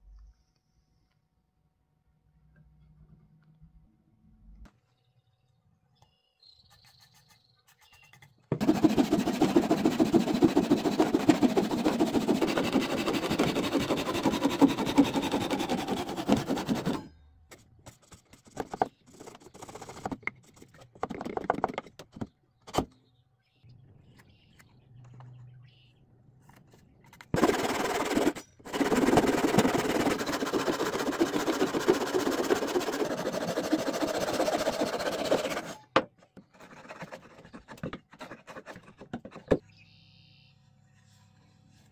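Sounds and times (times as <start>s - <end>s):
saw cutting through wood: 8.6s - 17.1s, 27.4s - 36.0s.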